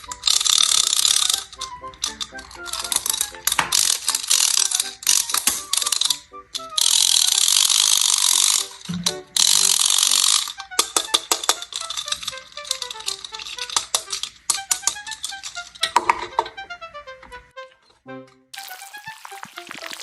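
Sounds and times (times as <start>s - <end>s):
soft plucked tune: 8.4s - 9.4s.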